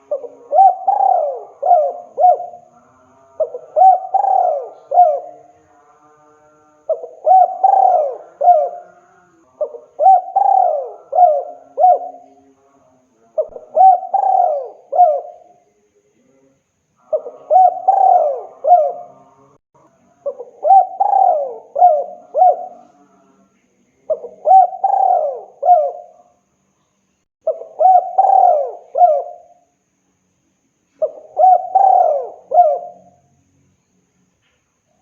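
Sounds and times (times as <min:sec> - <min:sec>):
dove cooing: 0:00.0 - 0:02.7, 0:03.4 - 0:05.5, 0:06.9 - 0:12.4, 0:13.4 - 0:15.5, 0:17.0 - 0:19.2, 0:20.2 - 0:23.0, 0:24.1 - 0:26.2, 0:27.4 - 0:29.6, 0:31.0 - 0:33.2.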